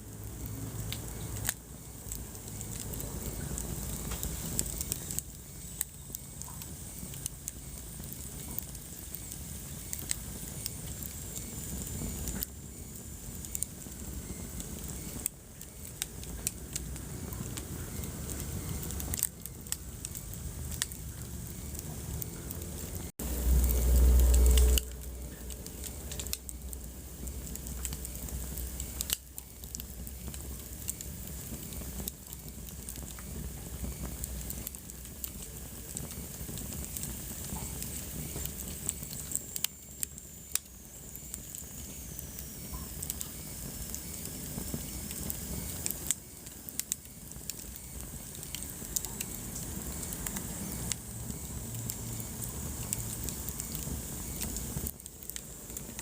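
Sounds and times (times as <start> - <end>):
fire hissing: 0.0 - 56.0
wood fire crackling and popping: 0.0 - 56.0
loud low rumble: 20.6 - 27.5.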